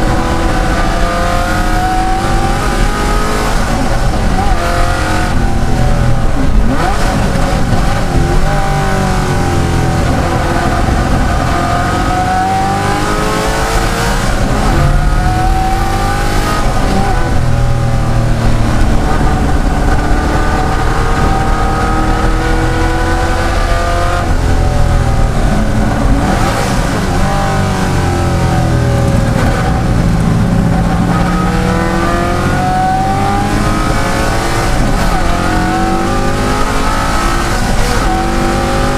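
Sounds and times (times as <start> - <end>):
car engine revving hard: 0.0 - 38.9.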